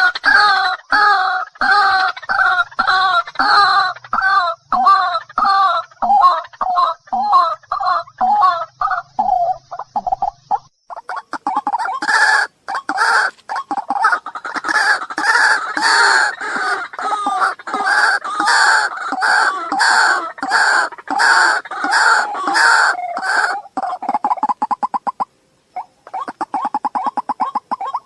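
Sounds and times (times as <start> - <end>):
waterhen calling: 0.0 - 28.0.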